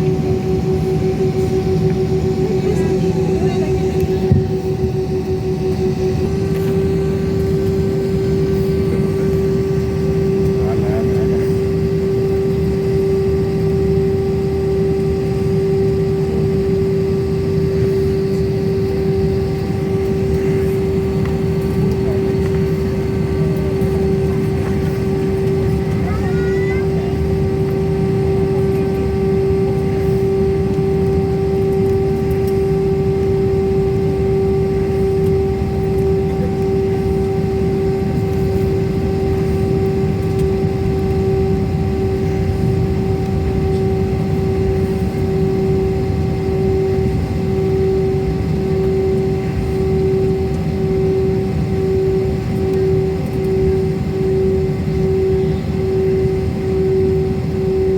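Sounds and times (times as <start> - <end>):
jet engine rumble in cabin: 0.0 - 57.9.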